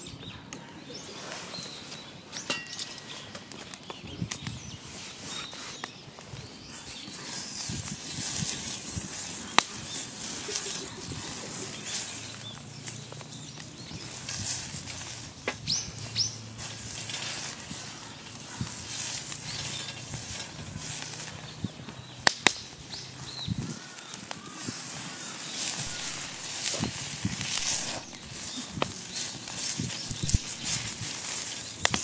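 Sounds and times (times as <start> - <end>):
bird chirping: 0.0 - 32.0
wood fire crackling: 1.8 - 4.6, 5.7 - 32.0
sharp pops of fire: 7.6 - 32.0.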